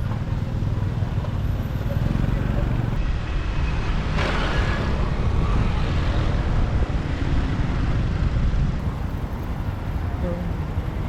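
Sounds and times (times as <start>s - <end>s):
motorbike engine rumble: 0.0s - 3.0s, 8.7s - 11.0s
tyre and wind noise: 0.0s - 11.0s.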